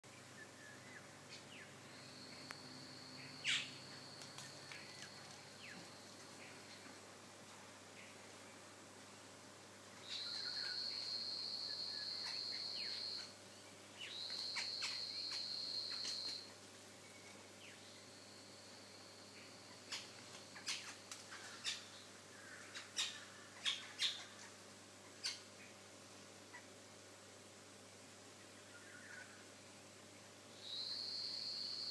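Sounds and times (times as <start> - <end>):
birds chirping: 3.1 - 6.8, 10.0 - 11.1
birds calling: 3.2 - 6.8, 10.0 - 11.1, 19.4 - 25.8.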